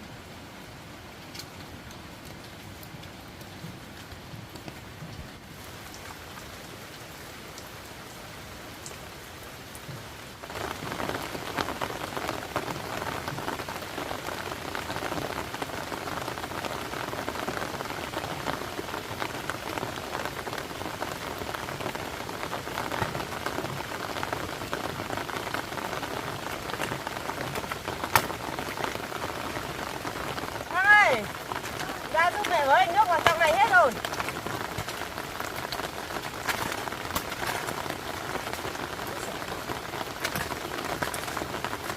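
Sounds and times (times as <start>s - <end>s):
heavy rain: 0.0s - 41.9s.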